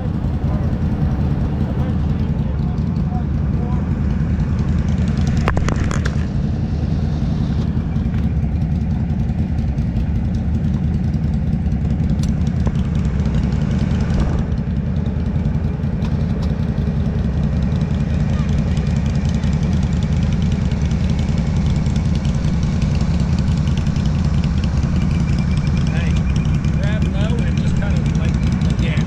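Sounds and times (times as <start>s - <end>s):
atv engine idling: 0.0s - 29.0s.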